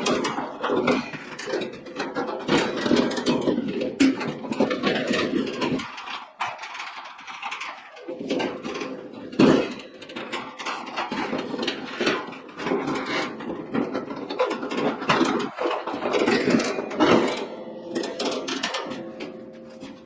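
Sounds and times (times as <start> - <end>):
heater parts rubbing and scraping: 10.4 - 20.0.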